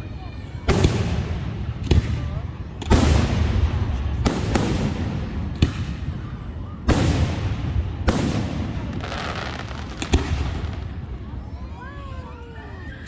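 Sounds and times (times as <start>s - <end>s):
fireworks banging: 0.6s - 11.5s.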